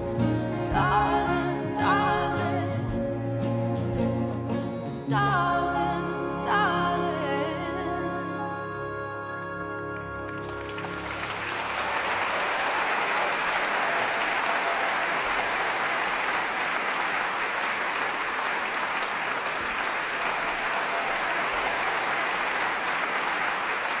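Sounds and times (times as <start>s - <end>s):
audience applause: 10.2s - 24.0s.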